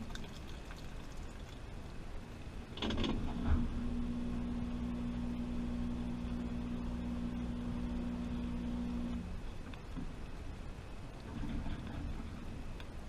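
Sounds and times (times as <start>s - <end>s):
washing machine running: 3.2s - 9.4s.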